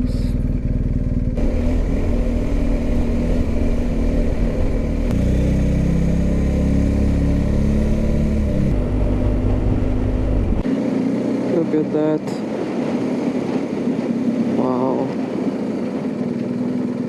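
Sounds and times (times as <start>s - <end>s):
motorcycle engine running: 0.0s - 12.2s, 14.1s - 17.0s
rush of air noise: 1.4s - 6.6s.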